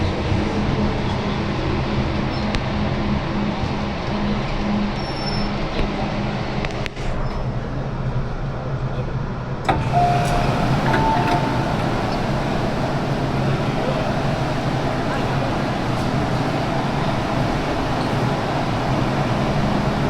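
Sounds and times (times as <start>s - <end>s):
train wheels rumbling on track: 0.0s - 20.0s
low motor hum: 9.7s - 20.0s
brief high squeals: 9.8s - 12.3s.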